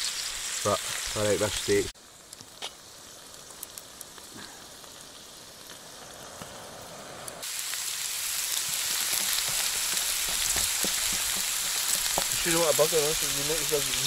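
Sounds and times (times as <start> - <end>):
steaks sizzling in a frying pan: 0.0 - 2.2, 7.4 - 14.0.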